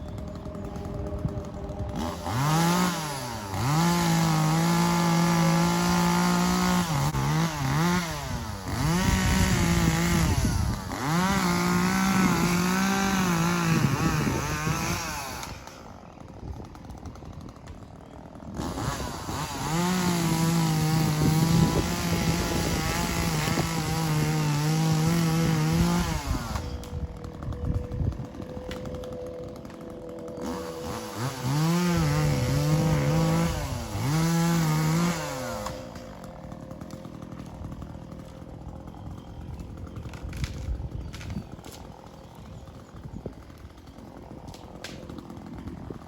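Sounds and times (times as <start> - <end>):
chainsaw revving: 0.0 - 46.0.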